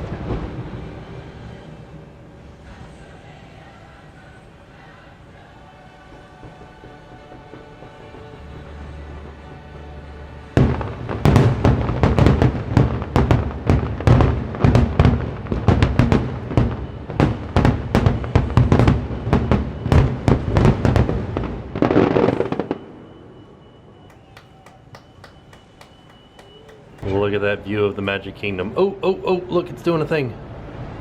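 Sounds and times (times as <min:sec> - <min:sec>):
faint fireworks crackles: 0:00.0 - 0:27.5
fireworks bangs: 0:05.4 - 0:09.8, 0:10.6 - 0:23.0, 0:24.1 - 0:27.2
show music: 0:24.1 - 0:27.0.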